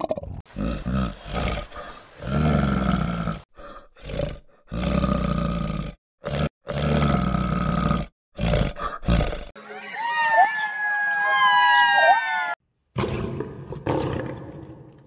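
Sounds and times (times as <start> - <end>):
large animal roaring: 4.0 - 9.5.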